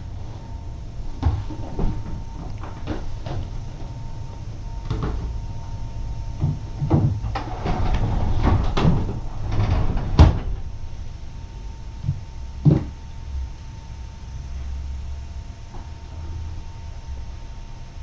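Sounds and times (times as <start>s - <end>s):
rustling and clattering of objects: 0.0s - 5.6s, 6.3s - 11.3s, 11.9s - 13.0s
sharp knocks: 12.0s - 13.0s.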